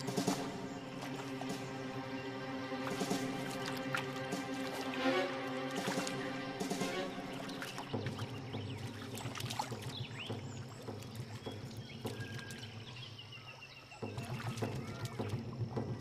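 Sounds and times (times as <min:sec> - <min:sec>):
water splashing and churning: 0:00.0 - 0:16.0.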